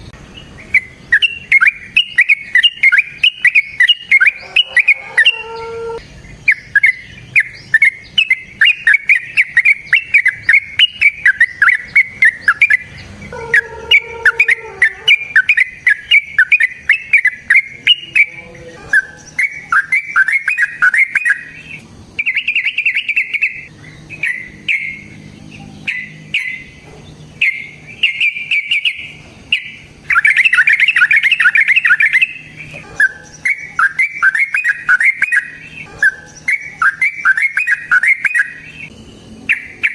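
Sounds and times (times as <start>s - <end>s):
cage bird chirping: 0.0s - 39.9s.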